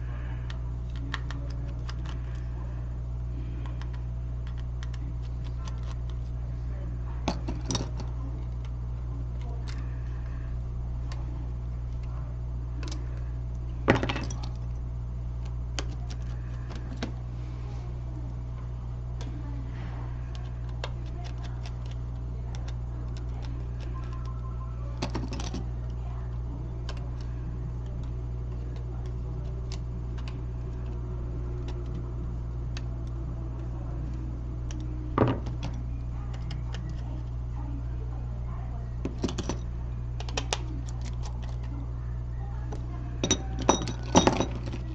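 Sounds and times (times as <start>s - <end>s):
low electrical hum: 0.0s - 44.9s
metal tools tapping phone parts: 25.0s - 25.9s, 34.6s - 37.3s, 39.0s - 41.7s, 42.7s - 44.9s.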